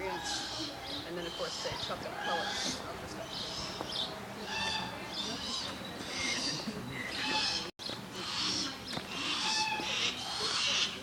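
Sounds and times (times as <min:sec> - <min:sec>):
young bird of prey screeching: 0:08.2 - 0:11.0.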